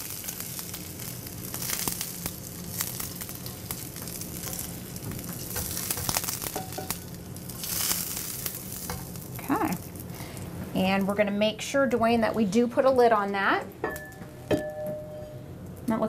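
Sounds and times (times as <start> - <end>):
meat sizzling in hot fat: 0.0 - 10.9.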